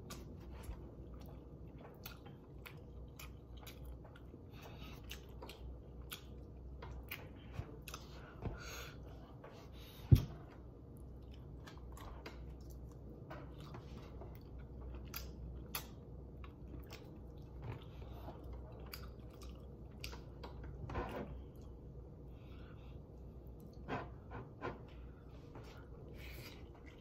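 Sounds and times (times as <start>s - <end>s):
person chewing with mouth clicks: 0.0s - 8.4s, 11.0s - 20.7s.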